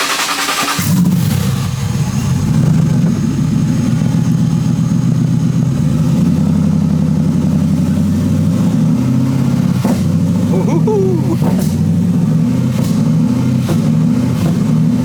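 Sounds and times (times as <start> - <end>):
engine idling: 0.0 - 10.6.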